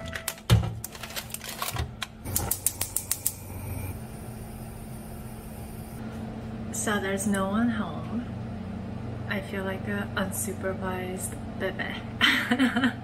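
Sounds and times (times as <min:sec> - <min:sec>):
stove igniter clicking: 0:02.2 - 0:03.8.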